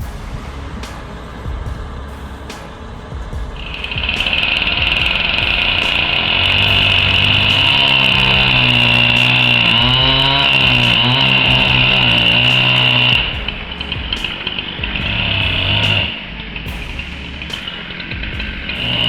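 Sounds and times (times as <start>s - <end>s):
chainsaw cutting wood: 4.2s - 13.4s.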